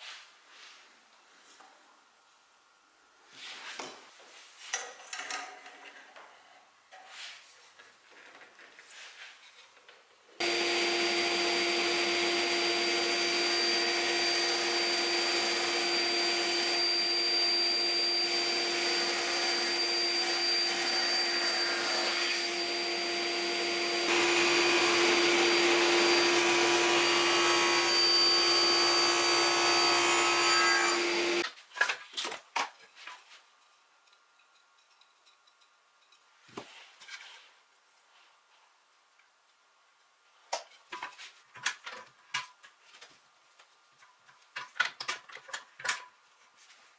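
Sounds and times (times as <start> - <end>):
electric machine humming and whining: 10.4 - 31.4.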